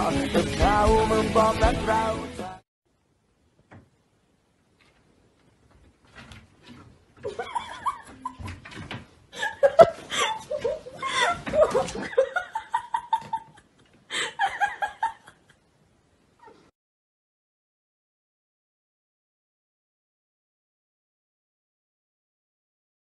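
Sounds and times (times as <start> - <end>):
people laughing: 7.3 - 8.6, 9.4 - 15.5.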